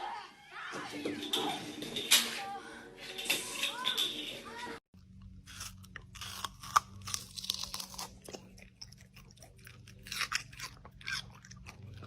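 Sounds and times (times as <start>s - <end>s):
crunchy chewing: 5.0s - 12.0s.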